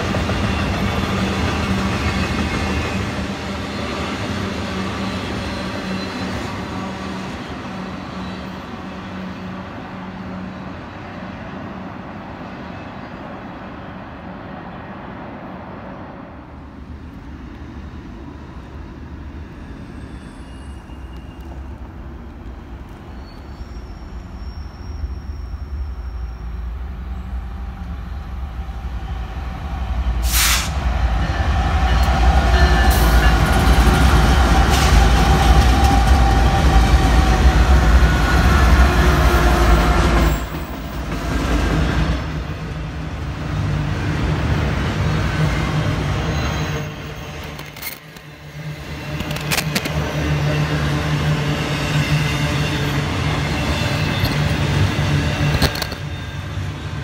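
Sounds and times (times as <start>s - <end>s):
diesel locomotives passing: 0.0s - 57.0s
freight cars rolling on rails: 18.5s - 57.0s.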